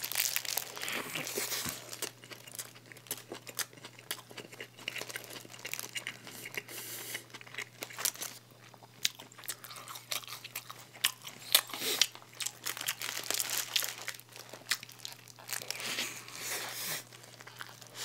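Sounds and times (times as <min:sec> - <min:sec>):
paper wrapper crinkling: 0:00.0 - 0:03.2, 0:05.0 - 0:06.0, 0:12.3 - 0:18.0.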